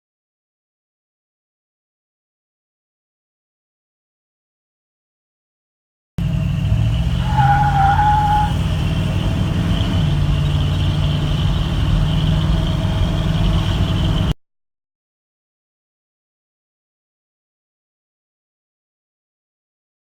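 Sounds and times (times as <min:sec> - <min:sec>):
engine exhaust rumble: 0:06.2 - 0:14.4
brief high squeal: 0:07.2 - 0:08.6.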